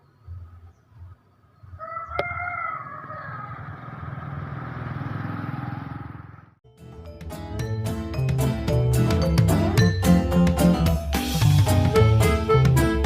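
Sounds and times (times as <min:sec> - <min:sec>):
rooster crowing: 0:01.8 - 0:04.1
motorcycle passing: 0:02.7 - 0:06.6.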